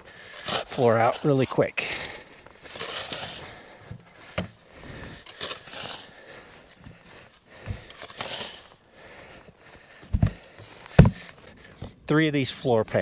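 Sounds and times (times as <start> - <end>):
footsteps crunching in snow: 0.3 - 11.5.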